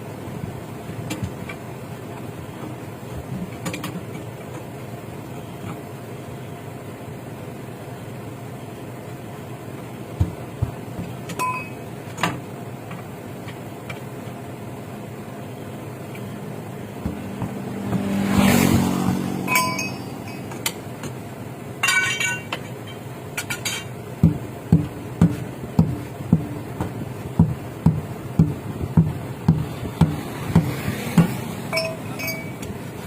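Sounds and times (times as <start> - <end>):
hammer blows: 17.0 - 20.8
metal tools clinking: 19.4 - 21.2, 21.8 - 24.0, 31.7 - 32.7.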